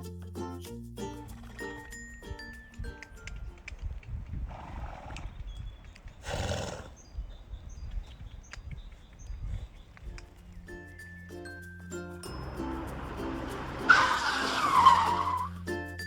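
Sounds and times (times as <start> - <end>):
horse calling: 4.4 - 7.6, 12.8 - 15.6.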